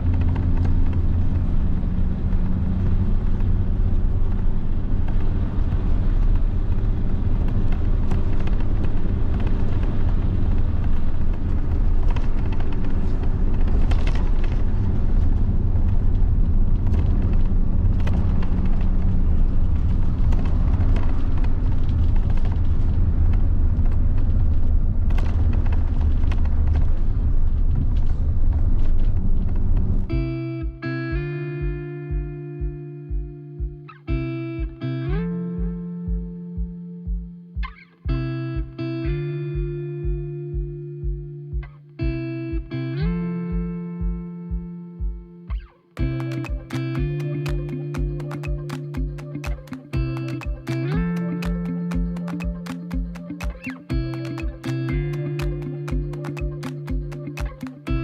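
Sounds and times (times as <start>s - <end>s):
bus diesel engine drone: 0.0s - 33.2s
road noise: 0.0s - 36.7s, 42.0s - 58.0s.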